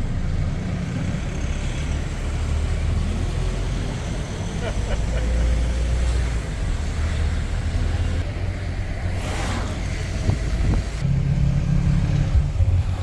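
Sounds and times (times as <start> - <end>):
vehicle engine and road noise: 0.0 - 13.0
brief rushing hiss: 9.2 - 10.0.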